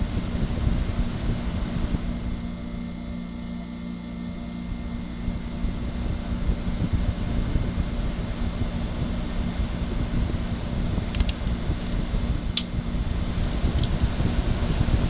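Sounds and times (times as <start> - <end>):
air conditioner fan blowing: 0.0 - 15.0
compressor humming: 0.0 - 15.0.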